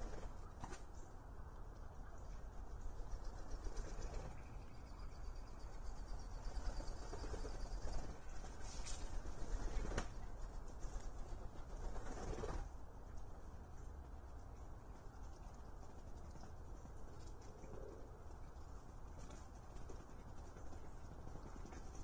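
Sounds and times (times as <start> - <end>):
ducks flapping wings: 0.0 - 0.9, 3.1 - 4.7, 6.7 - 13.3, 14.8 - 22.0.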